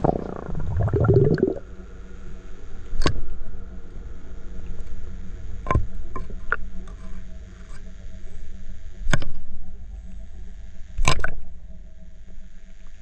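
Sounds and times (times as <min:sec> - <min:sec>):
stream water gurgling: 0:00.0 - 0:01.6.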